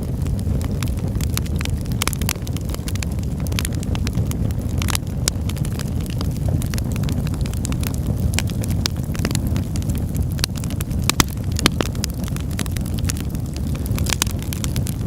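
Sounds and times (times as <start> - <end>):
fire crackling and popping: 0.0 - 15.0
fire rumbling: 0.0 - 15.0.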